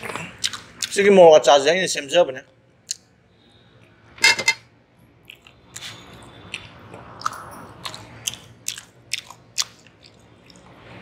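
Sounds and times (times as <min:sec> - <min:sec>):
person chewing food: 0:00.0 - 0:01.0, 0:05.2 - 0:11.0.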